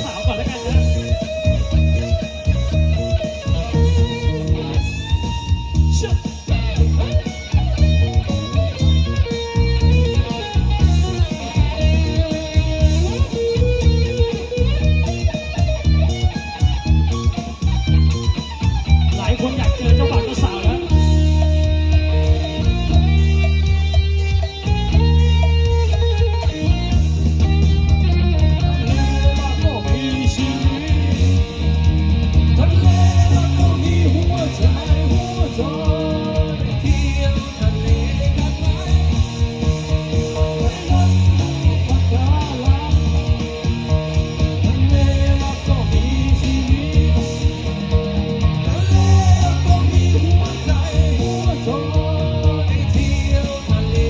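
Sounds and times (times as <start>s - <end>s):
bass guitar: 0.0s - 54.0s
electric guitar lead: 0.0s - 54.0s
rock band playing: 0.0s - 54.0s
steady drum beat: 0.0s - 54.0s.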